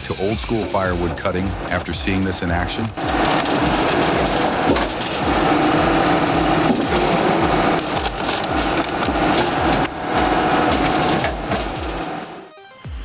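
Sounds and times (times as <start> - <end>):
hydraulic chainsaw pulsing: 1.1 - 12.4.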